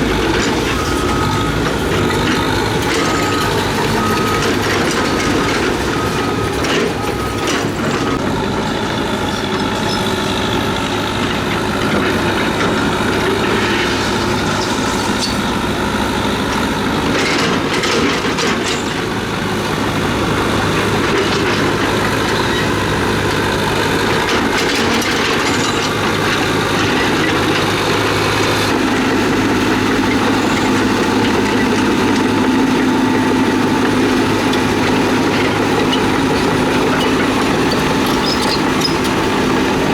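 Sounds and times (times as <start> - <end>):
diesel engine of tracked machinery: 0.0 - 39.9.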